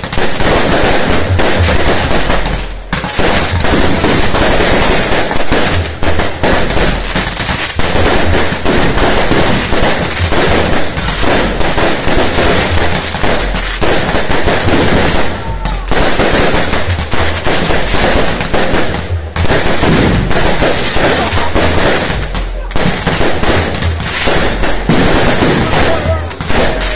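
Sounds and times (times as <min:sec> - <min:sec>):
firecrackers banging rapidly: 0:00.0 - 0:26.9.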